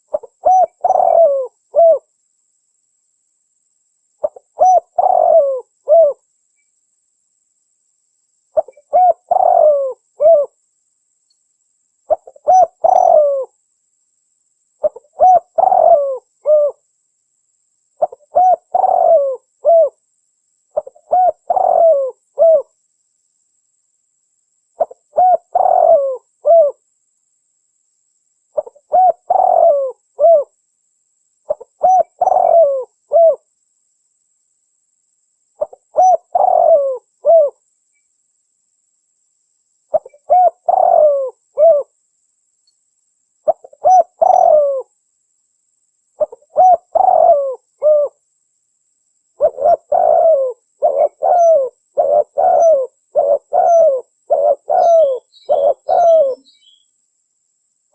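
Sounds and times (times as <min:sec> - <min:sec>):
dove cooing: 0:00.0 - 0:02.1, 0:04.2 - 0:06.2, 0:08.6 - 0:10.6, 0:12.1 - 0:13.5, 0:14.8 - 0:16.8, 0:18.0 - 0:20.0, 0:20.8 - 0:22.7, 0:24.8 - 0:26.8, 0:28.6 - 0:30.5, 0:31.5 - 0:33.5, 0:35.6 - 0:37.6, 0:39.9 - 0:41.9, 0:43.4 - 0:44.9, 0:46.2 - 0:48.2, 0:49.4 - 0:56.8.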